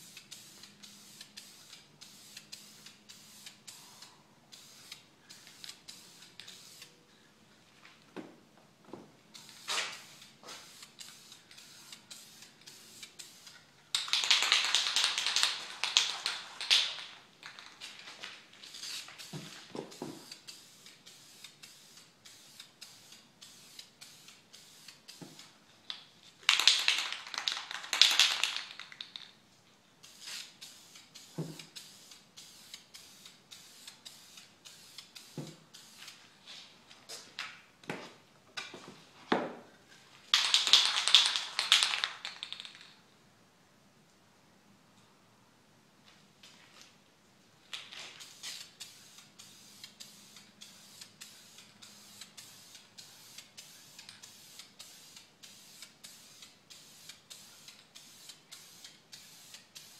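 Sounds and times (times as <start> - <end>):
spray paint can hissing: 0.0 - 7.0, 9.3 - 17.7, 18.6 - 25.6, 26.5 - 29.1, 30.0 - 36.2, 40.4 - 42.7, 48.0 - 59.9.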